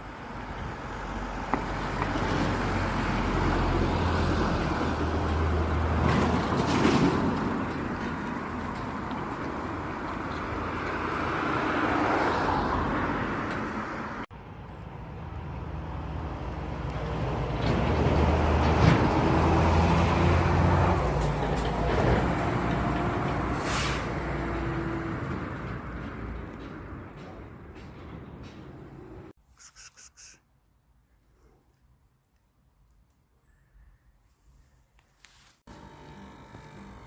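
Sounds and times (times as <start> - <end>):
vehicles passing: 0.0 - 29.4.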